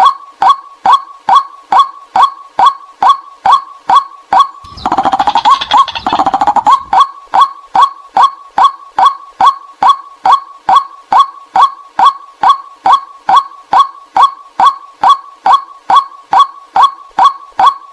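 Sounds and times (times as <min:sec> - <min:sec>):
waterhen calls: 0:04.6 - 0:07.5.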